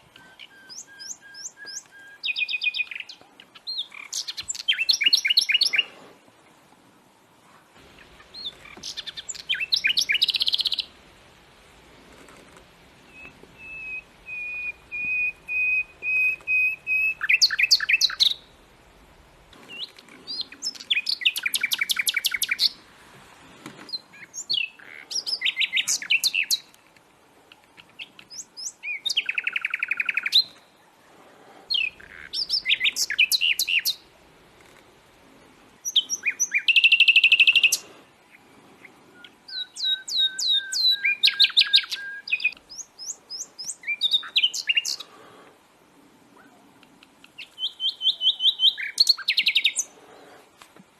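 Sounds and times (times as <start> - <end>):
songbird trilling and chirping: 0.1 - 5.9, 8.0 - 10.9, 13.1 - 18.6, 19.6 - 22.8, 23.9 - 26.8, 27.5 - 30.8, 31.7 - 34.0, 35.8 - 38.5, 39.1 - 45.1, 46.4 - 50.0.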